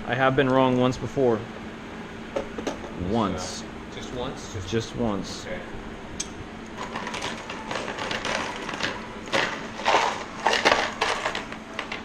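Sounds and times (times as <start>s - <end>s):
parts rustling and crunching: 6.8s - 12.0s.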